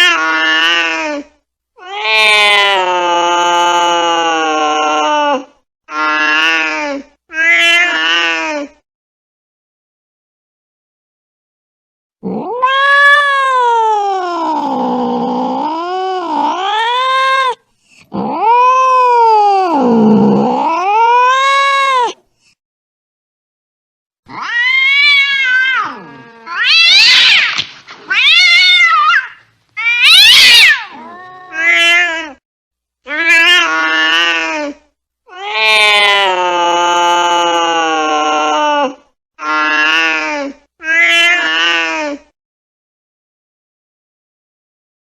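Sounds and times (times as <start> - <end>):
cat yowling angrily: 1.8 - 6.7, 7.3 - 8.4, 12.2 - 15.6, 18.2 - 22.2, 24.3 - 32.4, 33.1 - 34.6, 35.3 - 40.2, 40.8 - 42.0.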